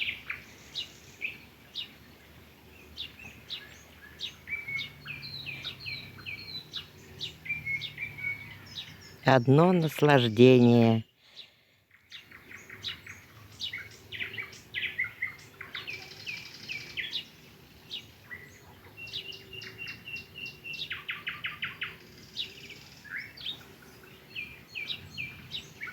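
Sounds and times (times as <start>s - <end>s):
nightingale singing: 0.0s - 25.9s.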